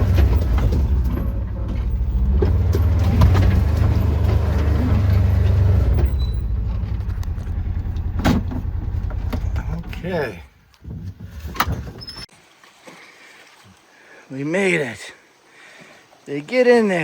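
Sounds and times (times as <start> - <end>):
vehicle engine rumbling: 0.0 - 12.2.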